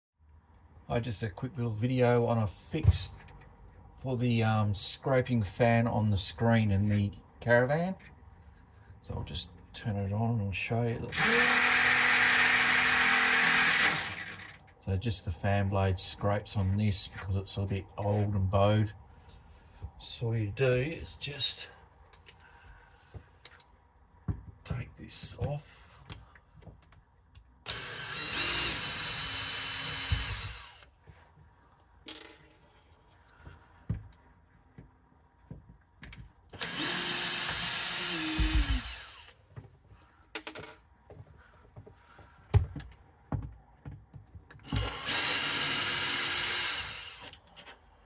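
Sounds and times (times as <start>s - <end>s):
cordless drill whining: 11.1s - 14.6s, 27.7s - 30.9s, 36.6s - 39.4s, 44.6s - 47.4s.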